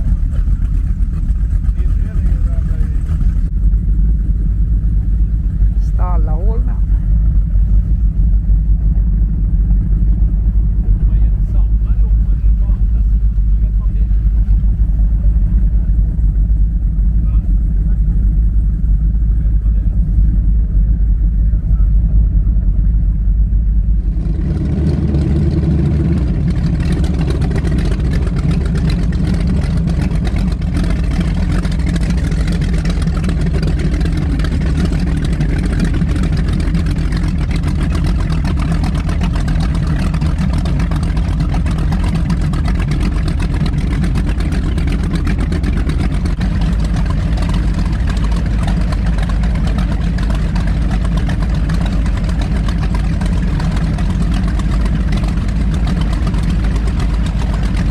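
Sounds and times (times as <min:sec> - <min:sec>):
powerboat engines running: 0:00.0 - 0:57.9.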